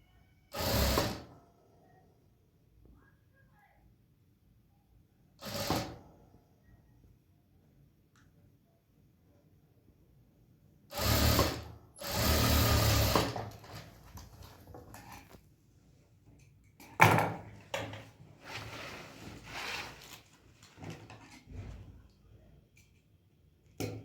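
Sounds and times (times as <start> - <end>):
sewing machine stitching: 0.5 - 1.3, 5.4 - 6.0, 10.9 - 14.0.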